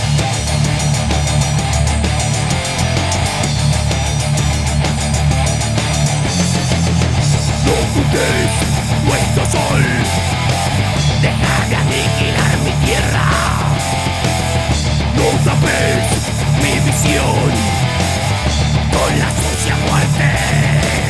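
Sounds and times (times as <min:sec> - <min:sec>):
heavy metal song: 0:00.0 - 0:21.0.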